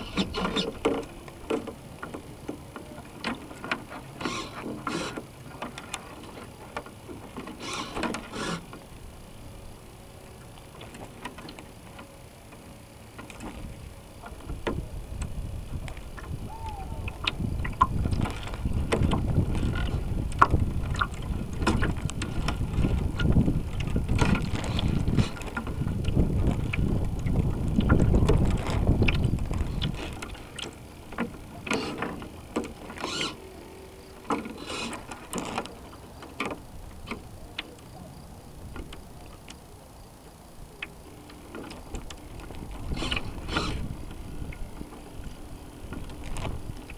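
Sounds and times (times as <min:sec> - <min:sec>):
wind buffeting camera: 0:13.5 - 0:31.4, 0:41.8 - 0:46.9.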